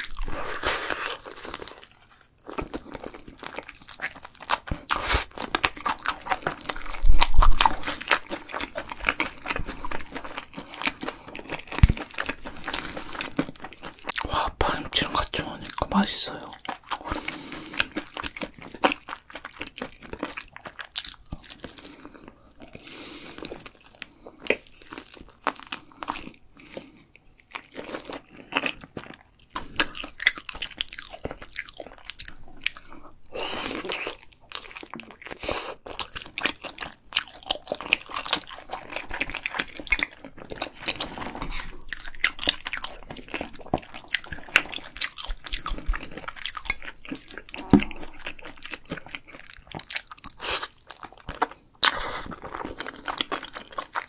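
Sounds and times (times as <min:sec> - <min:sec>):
crunching and chewing food: 0:00.0 - 0:54.0.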